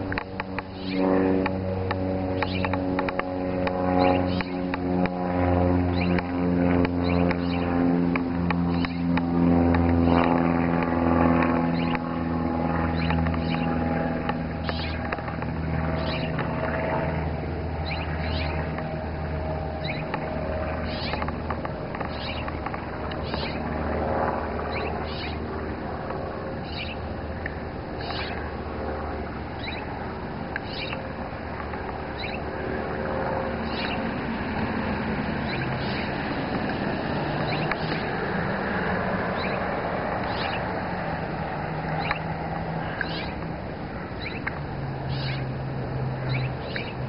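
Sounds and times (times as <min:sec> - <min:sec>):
low engine hum: 0:00.0 - 0:47.0
bird chirping: 0:00.6 - 0:01.1, 0:02.4 - 0:02.8, 0:04.0 - 0:04.6, 0:05.9 - 0:06.2, 0:07.0 - 0:07.7, 0:08.7 - 0:09.2, 0:11.7 - 0:12.0, 0:12.9 - 0:13.8, 0:14.6 - 0:15.1, 0:15.9 - 0:16.4, 0:17.8 - 0:18.7, 0:19.8 - 0:20.1, 0:20.8 - 0:21.3, 0:22.0 - 0:23.7, 0:24.7 - 0:25.4, 0:26.6 - 0:27.0, 0:28.0 - 0:28.4, 0:29.6 - 0:29.9, 0:30.6 - 0:31.0, 0:32.2 - 0:32.5, 0:33.6 - 0:34.1, 0:35.4 - 0:36.2, 0:37.4 - 0:38.1, 0:39.4 - 0:39.6, 0:40.2 - 0:40.6, 0:42.0 - 0:43.4, 0:44.2 - 0:45.5, 0:46.2 - 0:47.0.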